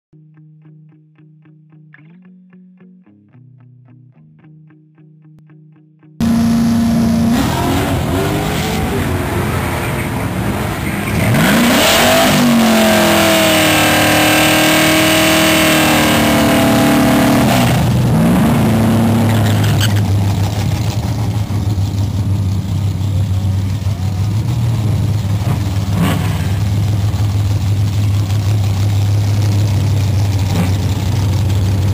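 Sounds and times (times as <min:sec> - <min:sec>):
car engine revving hard: 0:06.2 - 0:21.6, 0:23.6 - 0:31.9.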